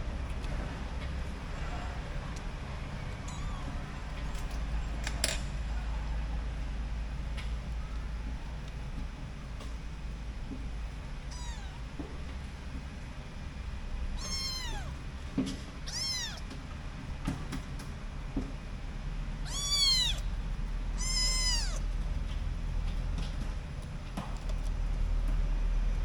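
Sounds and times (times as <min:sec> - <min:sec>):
kitten meowing: 0:03.2 - 0:03.9, 0:11.3 - 0:11.9, 0:14.2 - 0:15.0, 0:15.8 - 0:16.5, 0:19.4 - 0:20.3, 0:20.9 - 0:21.9.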